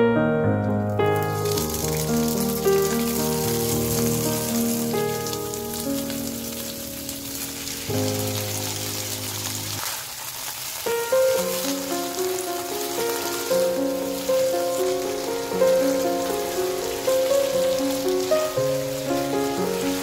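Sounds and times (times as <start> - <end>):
vegetables sizzling in oil: 1.0 - 20.0
background music: 11.2 - 20.0.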